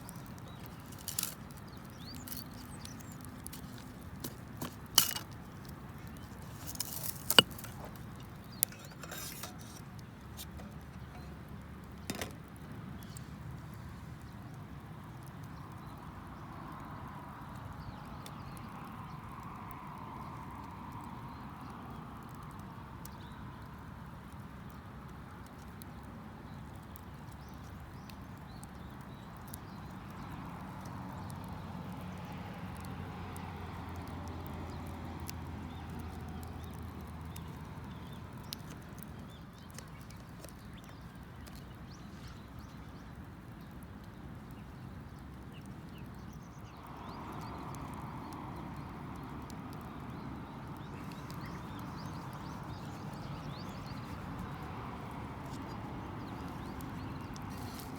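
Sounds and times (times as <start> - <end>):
campfire crackling and popping: 0.0 - 57.9.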